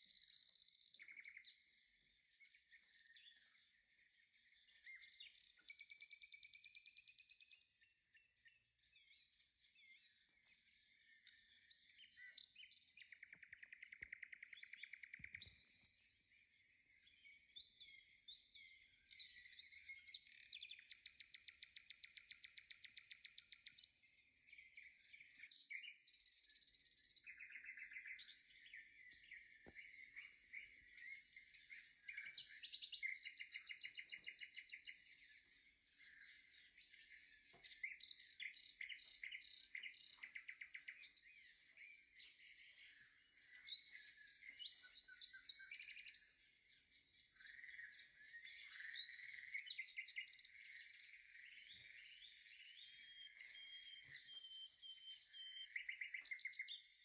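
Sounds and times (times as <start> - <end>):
small birds chirping and trilling: 0.0 - 57.0.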